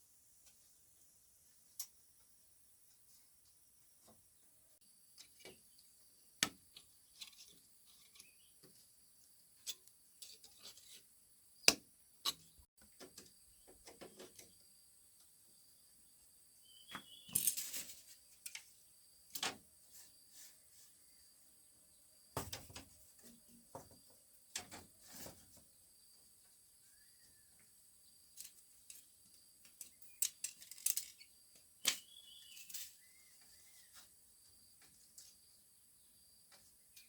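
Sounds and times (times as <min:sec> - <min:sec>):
faint bird chirps: 0:15.5 - 0:22.2, 0:25.7 - 0:37.0.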